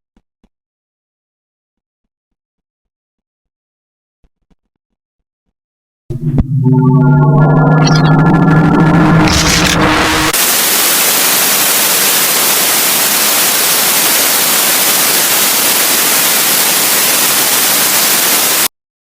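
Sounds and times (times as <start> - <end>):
static hiss: 10.2 - 18.7.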